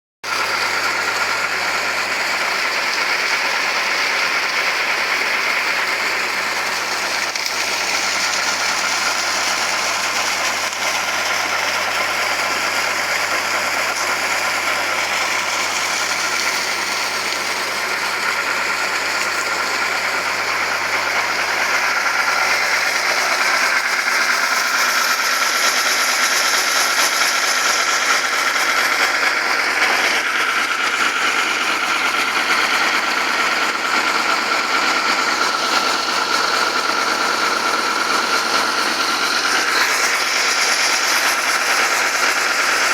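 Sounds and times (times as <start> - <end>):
tractor engine running: 0.2 - 42.9
thin steady alternator whine: 0.3 - 42.9.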